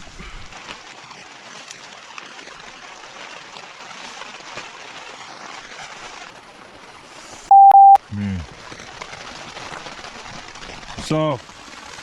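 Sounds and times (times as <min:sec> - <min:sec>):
heavy rain falling: 0:00.0 - 0:07.4, 0:08.1 - 0:12.0.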